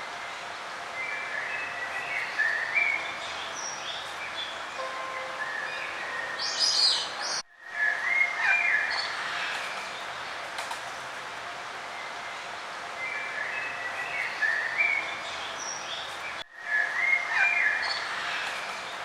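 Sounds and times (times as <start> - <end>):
outdoor background hiss: 0.0 - 19.0
songbirds chirping and warbling: 0.0 - 19.0.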